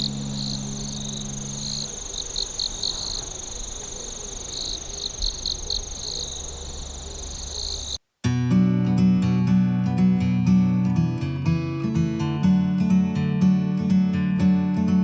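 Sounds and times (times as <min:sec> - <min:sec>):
strummed acoustic guitar music: 0:00.0 - 0:03.2, 0:08.2 - 0:15.0
insects trilling and chirping: 0:00.0 - 0:08.0.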